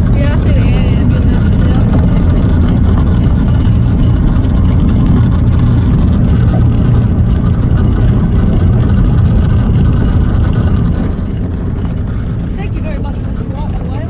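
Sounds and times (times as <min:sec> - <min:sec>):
light aircraft propeller engine drone: 0:00.0 - 0:14.0.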